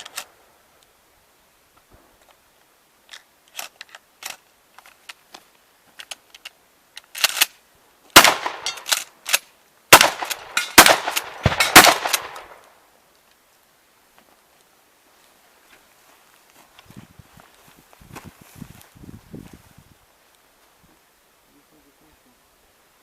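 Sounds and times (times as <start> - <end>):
loud shotgun shots: 8.2 - 9.0, 9.9 - 12.6
faint sharp cracks: 8.2 - 13.6.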